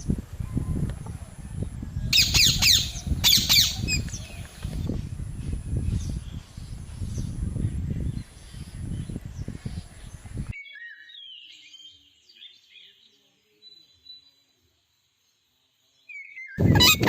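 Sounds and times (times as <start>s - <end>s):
faint short parrot chirps: 16.6s - 17.0s.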